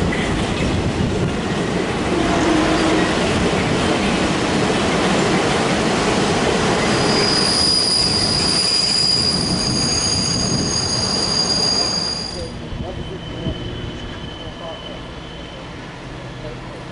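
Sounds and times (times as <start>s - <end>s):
train wheels rumbling and rattling: 0.0s - 16.9s
train wheels squealing: 6.8s - 16.6s.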